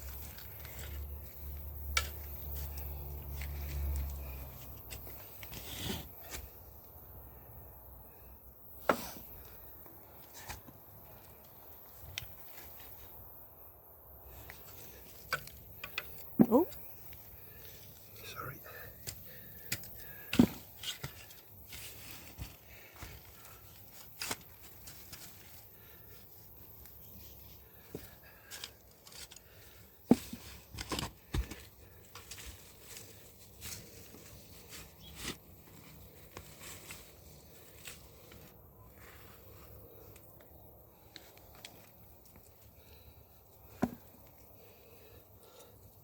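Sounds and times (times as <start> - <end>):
tool scraping through soil: 0.0 - 6.6.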